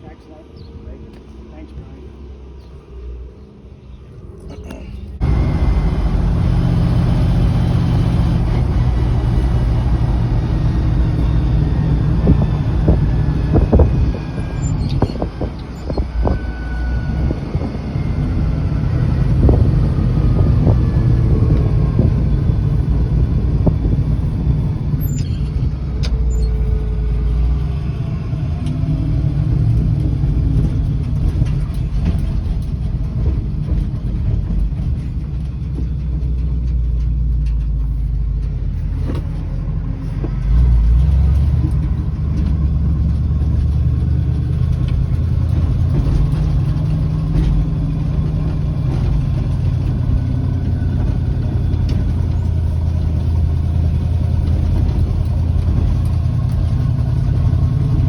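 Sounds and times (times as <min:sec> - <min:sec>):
pickup engine running: 0:00.0 - 0:58.0
knocks and clunks: 0:28.6 - 0:58.0.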